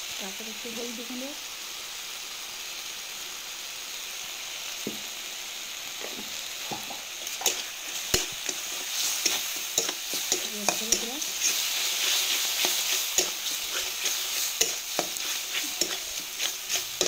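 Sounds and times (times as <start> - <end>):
spice paste sizzling in oil: 0.0 - 17.0
metal spatula scraping pan: 7.3 - 17.0.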